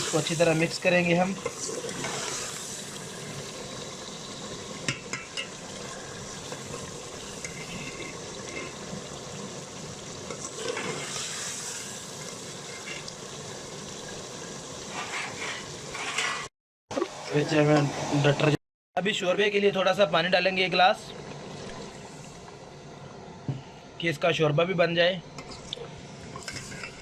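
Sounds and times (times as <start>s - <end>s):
curry sizzling in a pot: 0.0s - 16.5s, 25.5s - 27.0s
stirring in a pot: 0.1s - 3.6s, 4.8s - 9.2s, 14.8s - 16.5s, 26.3s - 27.0s.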